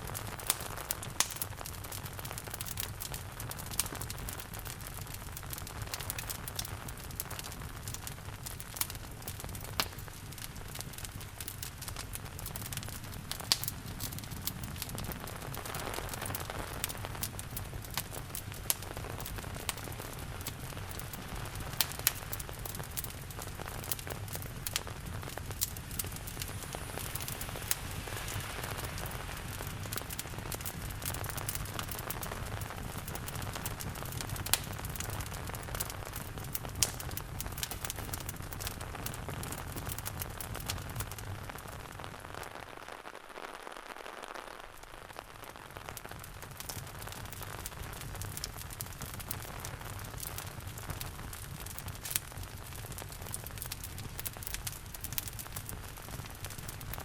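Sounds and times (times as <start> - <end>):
wood fire crackling and popping: 0.0 - 57.0
falling rain hiss: 10.1 - 36.9.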